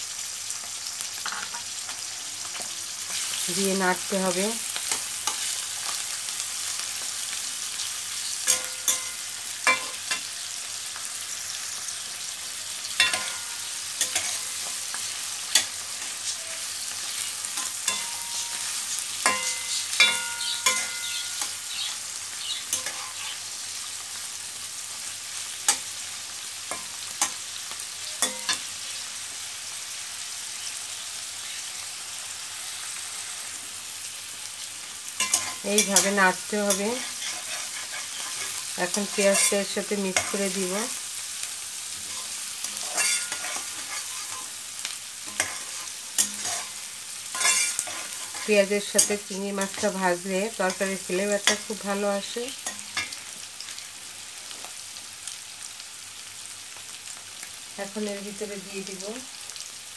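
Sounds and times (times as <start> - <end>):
prawns sizzling in hot oil: 0.0 - 59.9
steel spatula scraping a pan: 17.6 - 21.6, 22.7 - 23.4, 35.2 - 40.5, 42.0 - 44.6, 45.3 - 49.9.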